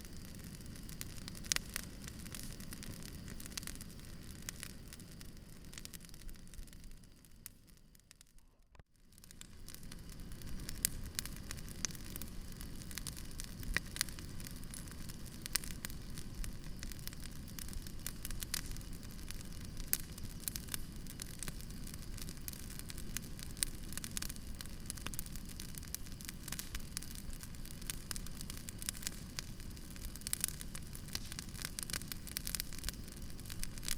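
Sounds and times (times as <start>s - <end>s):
campfire crackling and popping: 0.0s - 33.9s
low rumble of burning: 0.0s - 33.9s.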